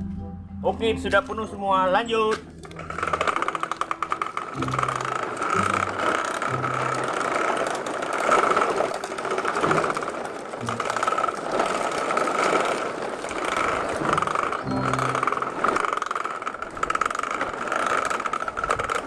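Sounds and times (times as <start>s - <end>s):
truck motor pulsing whine: 2.3s - 19.0s.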